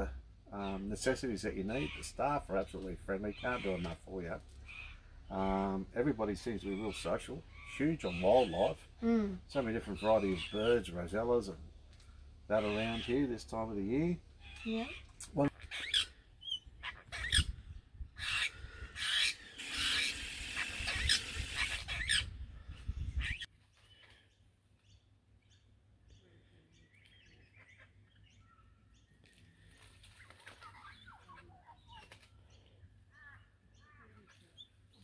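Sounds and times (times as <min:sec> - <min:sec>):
faint bird chirps: 0:20.6 - 0:35.0.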